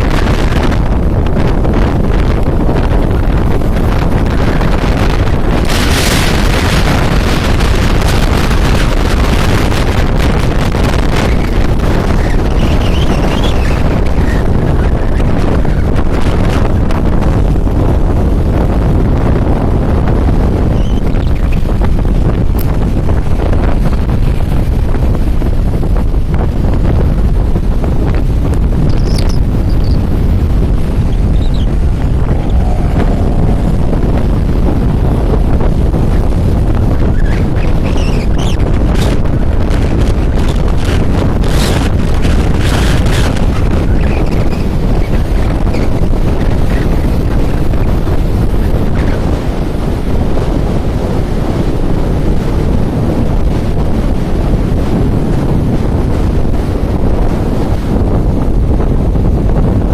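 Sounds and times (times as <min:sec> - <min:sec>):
rough sea waves: 0:00.0 - 0:59.9
wind buffeting microphone: 0:00.0 - 0:59.9
sea waves washing: 0:27.2 - 0:37.6.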